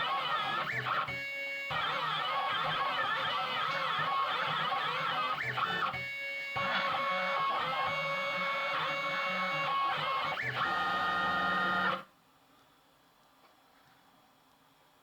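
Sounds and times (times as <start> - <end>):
stepper motors whining: 0.1 - 12.0.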